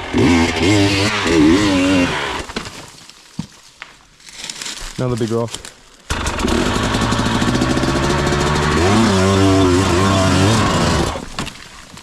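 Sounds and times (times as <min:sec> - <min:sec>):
dirt bike engine revving: 0:00.0 - 0:02.4, 0:06.1 - 0:11.3.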